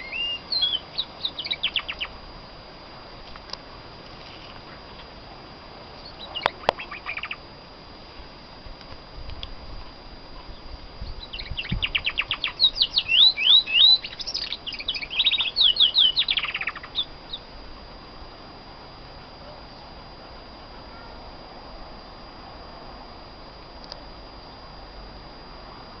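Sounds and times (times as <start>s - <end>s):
canary singing trills: 0.0s - 2.2s, 6.0s - 7.5s, 10.4s - 17.5s.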